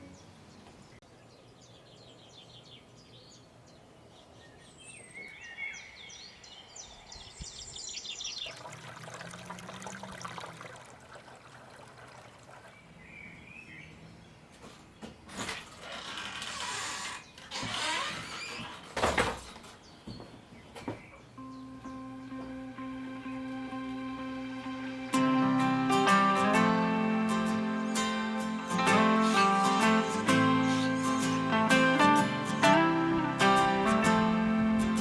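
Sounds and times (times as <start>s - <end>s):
small birds chirping: 0.0s - 10.4s, 11.6s - 15.3s, 19.6s - 23.7s.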